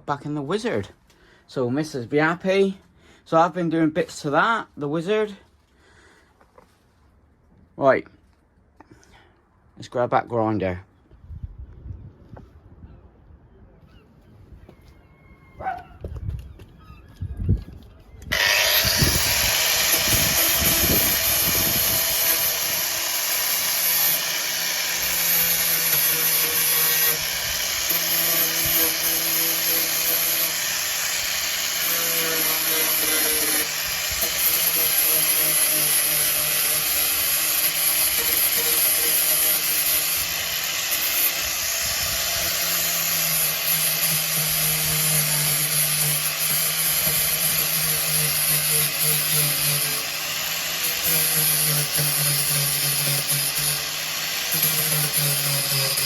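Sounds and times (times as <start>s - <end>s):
angle grinder grinding metal: 18.2s - 56.0s.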